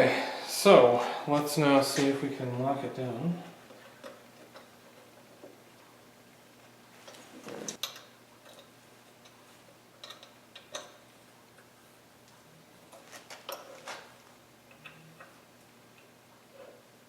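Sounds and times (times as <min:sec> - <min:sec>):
faint metallic clicks and knocks: 0:10.0 - 0:11.0.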